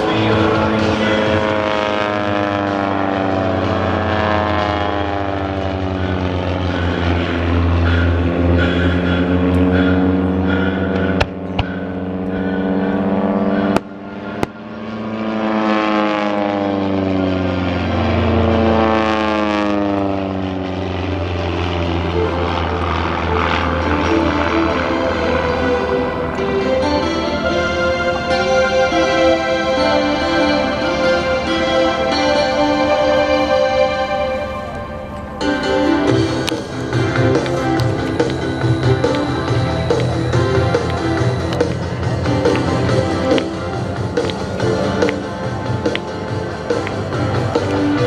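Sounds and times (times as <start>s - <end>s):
propeller planes droning past: 0.0s - 48.0s.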